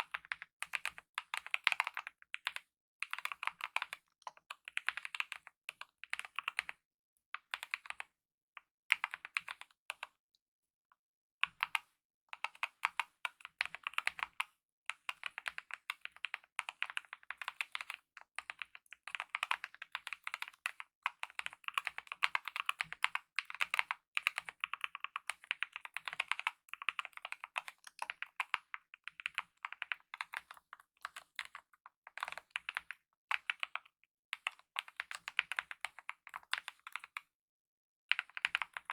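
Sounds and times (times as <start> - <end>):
mechanical keyboard typing: 0.0 - 4.0, 4.7 - 6.8, 15.0 - 37.2, 38.1 - 38.9.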